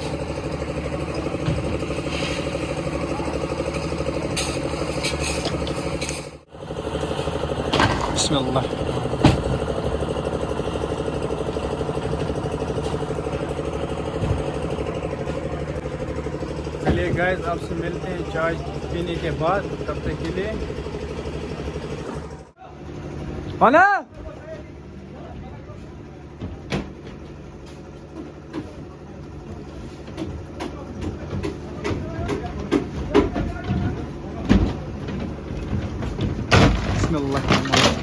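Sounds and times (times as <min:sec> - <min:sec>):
engine running with fast pulsing: 0:00.0 - 0:23.7.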